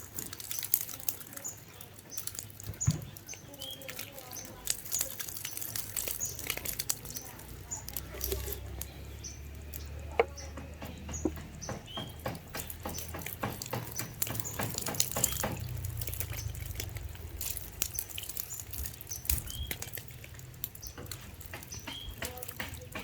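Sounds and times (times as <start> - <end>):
birds chirping: 0.0 - 23.0
small clicks and taps: 9.6 - 23.0.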